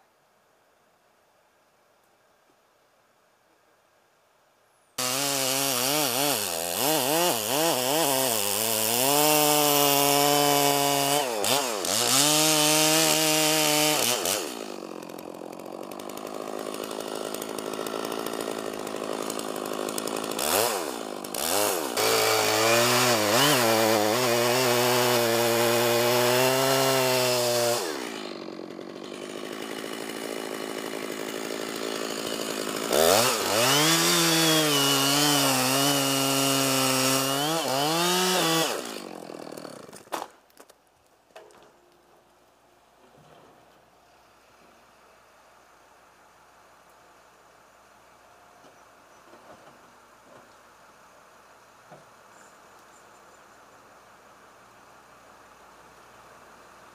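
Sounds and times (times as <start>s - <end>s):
chainsaw cutting wood: 5.0s - 41.8s.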